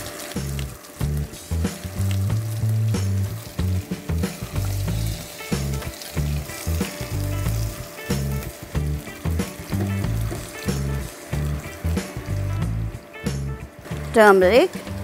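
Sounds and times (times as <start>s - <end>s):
background music with bass: 0.0s - 15.0s
onions sizzling in hot oil: 0.0s - 15.0s
spatula ticking in pot: 1.0s - 12.4s.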